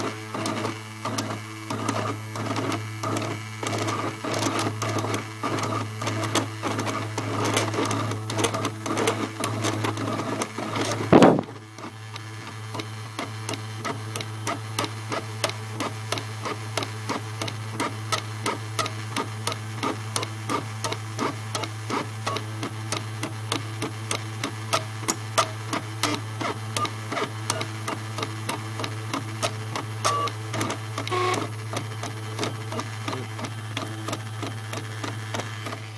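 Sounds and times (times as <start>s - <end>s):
machine cutting noise: 6.8s - 11.8s.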